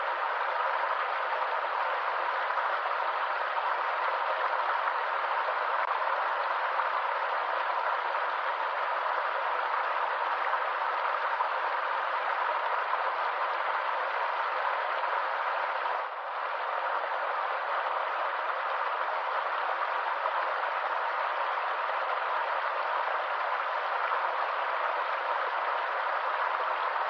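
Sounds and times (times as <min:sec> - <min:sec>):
stream water rushing and splashing: 0:00.0 - 0:27.0.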